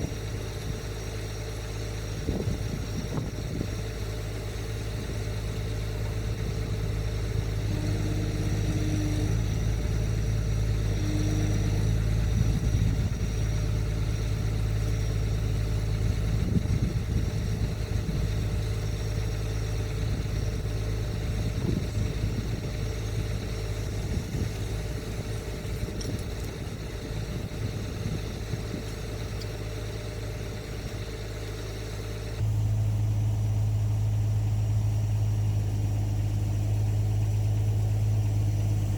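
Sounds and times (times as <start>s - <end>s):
excavator diesel engine humming: 0.0s - 38.9s
uneven rumbling: 0.0s - 38.9s.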